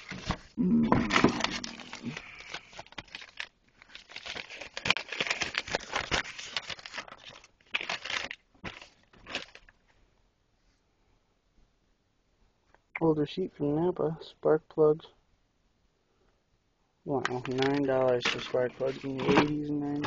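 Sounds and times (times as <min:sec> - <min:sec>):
paper crinkling: 0:00.0 - 0:00.5, 0:01.1 - 0:09.8, 0:17.2 - 0:20.0.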